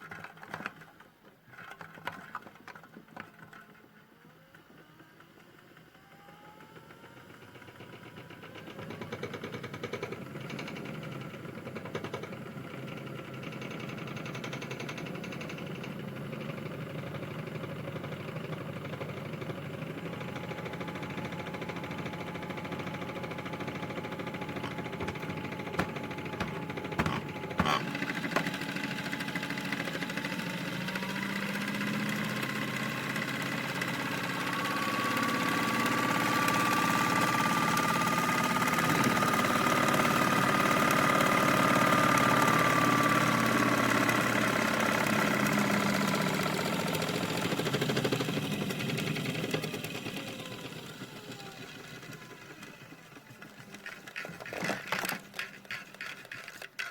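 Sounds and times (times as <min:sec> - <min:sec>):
small motor rattling and whining: 0:00.0 - 0:56.9
sharp knocks: 0:24.6 - 0:28.5.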